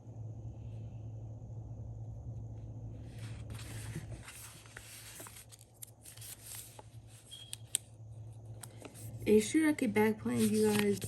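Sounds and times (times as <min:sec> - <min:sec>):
low electrical hum: 0:00.0 - 0:11.0
paper rustling: 0:03.1 - 0:07.3, 0:10.2 - 0:11.0.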